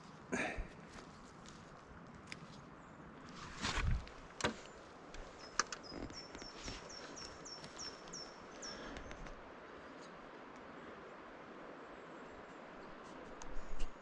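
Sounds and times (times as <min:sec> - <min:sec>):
rustling and snapping in forest litter: 0:00.9 - 0:09.4
small bird calling: 0:04.6 - 0:09.3.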